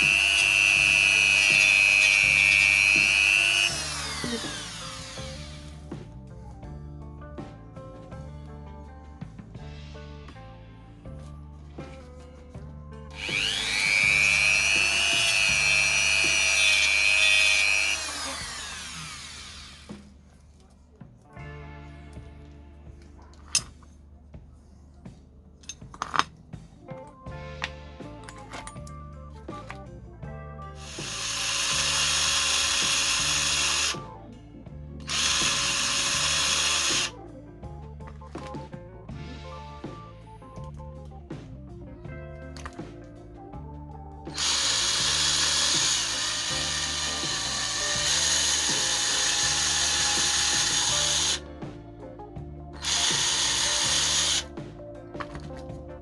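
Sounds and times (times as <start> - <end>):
power tool motor whine: 0.0 - 5.8, 13.1 - 20.1, 30.8 - 34.0, 35.1 - 37.1, 44.3 - 51.4, 52.8 - 54.5.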